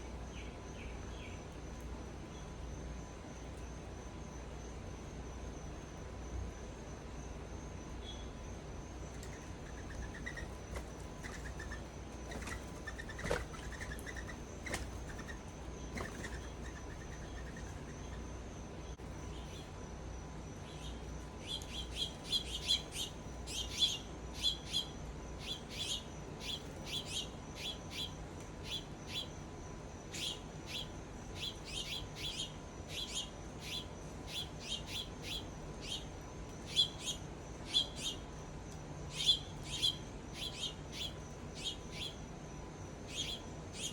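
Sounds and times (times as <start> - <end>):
small birds chirping: 7.9 - 19.8, 20.6 - 29.4, 30.1 - 38.4, 39.1 - 42.3, 43.0 - 43.9.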